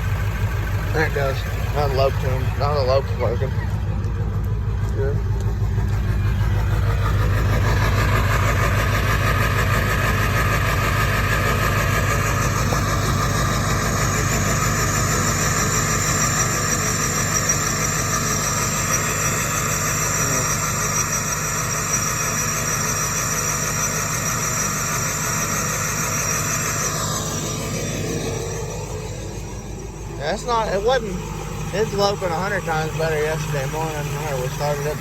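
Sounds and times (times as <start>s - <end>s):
diesel engine idling: 0.0s - 35.0s
turbo whistle: 6.5s - 35.0s.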